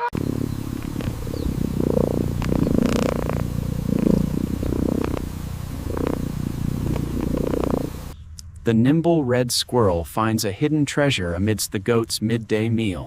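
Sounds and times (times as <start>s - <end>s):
cat purring: 0.1s - 8.2s.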